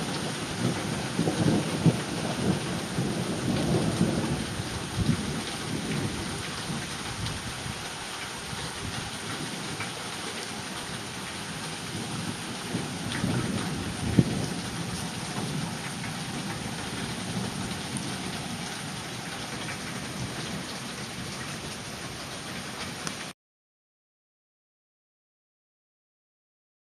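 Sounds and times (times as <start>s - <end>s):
thunder rumbling and cracking: 0.0s - 7.8s, 10.8s - 21.3s
rain pattering: 0.0s - 23.3s.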